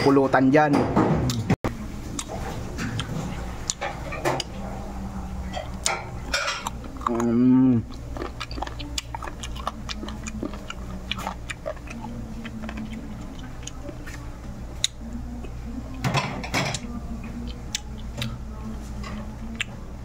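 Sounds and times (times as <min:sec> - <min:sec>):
low steady hum: 0:01.2 - 0:20.0
chewing clicks and smacks: 0:07.9 - 0:14.2, 0:17.4 - 0:18.4.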